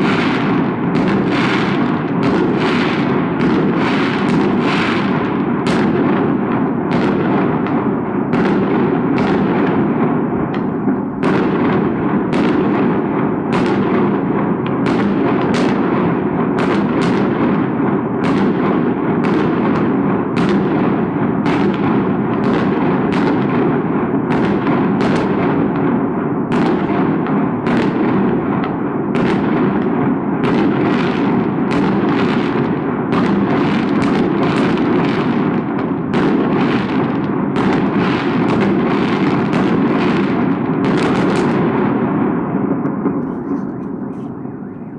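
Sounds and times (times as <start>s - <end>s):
firework shells bursting: 0.0s - 25.8s, 42.8s - 44.9s.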